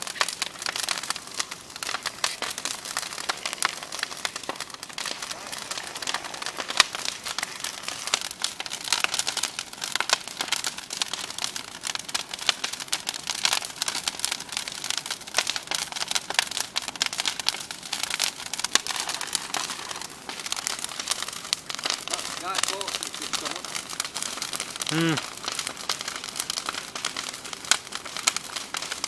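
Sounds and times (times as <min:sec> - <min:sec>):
bonfire crackling and popping: 0:00.0 - 0:29.0.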